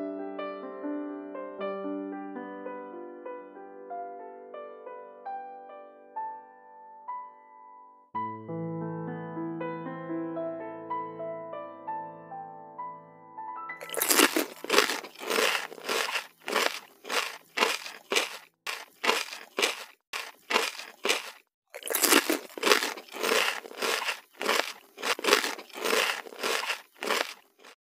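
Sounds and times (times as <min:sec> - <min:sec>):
crunching of fried chicken: 0:13.8 - 0:27.8.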